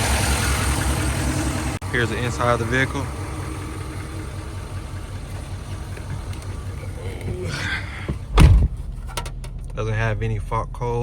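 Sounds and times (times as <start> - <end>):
diesel engine idling: 0.0 - 11.0
loud thump: 8.0 - 9.5.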